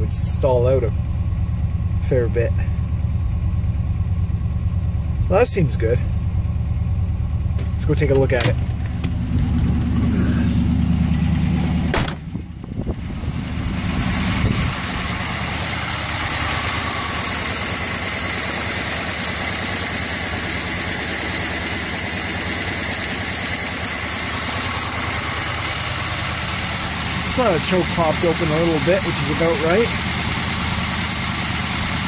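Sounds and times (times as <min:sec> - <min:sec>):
car engine idling: 0:00.0 - 0:32.0
engine thump: 0:06.0 - 0:30.0.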